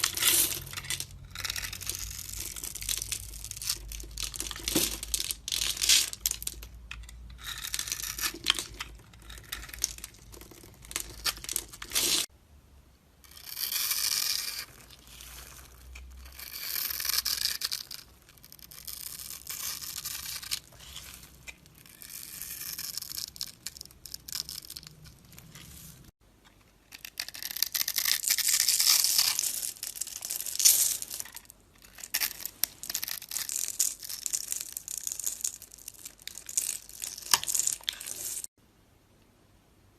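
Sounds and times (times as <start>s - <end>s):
blade scraping soap: 13.3s - 25.9s.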